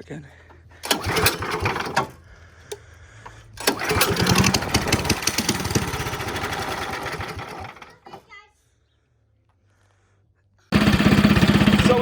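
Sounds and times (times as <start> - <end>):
go kart engine starting and running: 0.8 - 8.2, 10.7 - 12.0.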